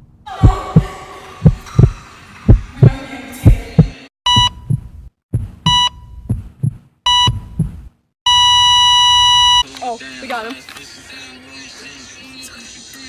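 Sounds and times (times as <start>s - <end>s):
heartbeat thumps: 0.3s - 8.0s
heart monitor flatline tone: 0.4s - 9.6s
heart monitor beeps: 4.3s - 9.6s.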